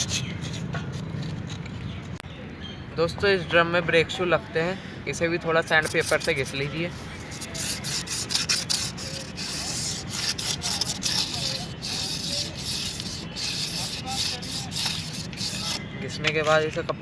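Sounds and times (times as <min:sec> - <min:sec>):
sandpaper scratching metal drum: 0:00.0 - 0:01.6, 0:05.7 - 0:15.8.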